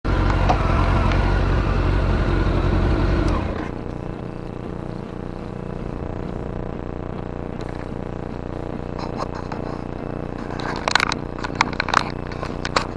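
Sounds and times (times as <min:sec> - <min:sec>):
motorcycle engine revving and idling: 0:00.0 - 0:09.0.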